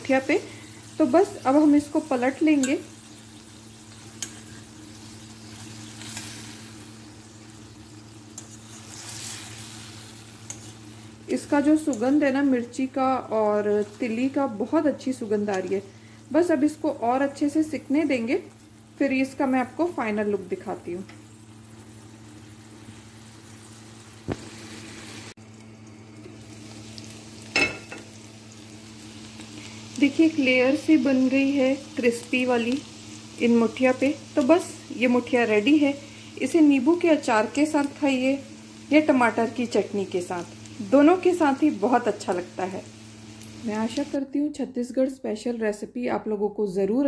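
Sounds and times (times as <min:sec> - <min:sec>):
dumplings sizzling in oil: 0:00.0 - 0:44.5
spoon scraping pan: 0:04.0 - 0:06.4.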